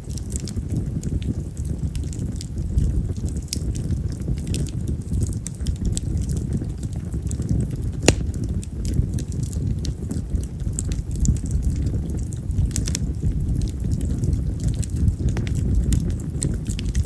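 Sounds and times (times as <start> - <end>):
fire crackles: 0.0 - 17.0
firewood burning with low rushing: 0.0 - 17.0
sharp pop of burning wood: 7.9 - 9.0.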